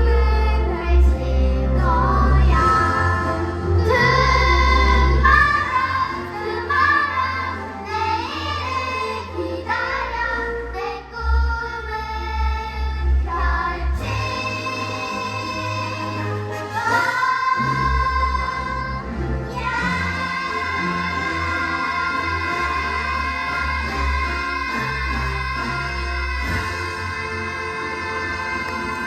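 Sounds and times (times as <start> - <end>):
children singing together: 0.0 - 29.0.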